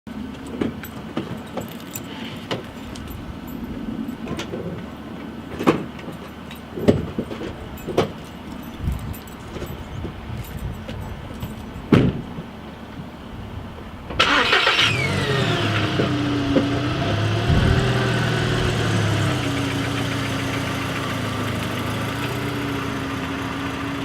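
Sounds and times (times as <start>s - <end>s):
keys jangling: 0.8s - 4.6s, 6.0s - 11.9s.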